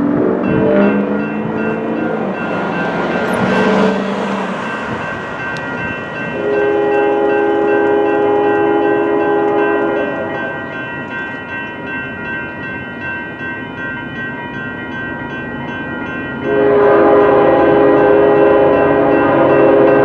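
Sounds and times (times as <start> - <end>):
crossing warning bells ringing: 0.0 - 20.0
locomotive air horn blast: 6.3 - 10.7, 16.5 - 20.0.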